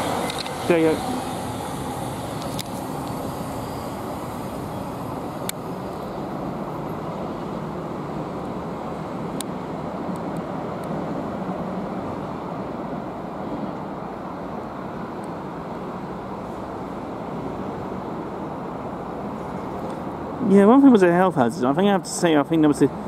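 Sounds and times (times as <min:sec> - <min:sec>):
train wheels rumbling: 0:00.0 - 0:12.4.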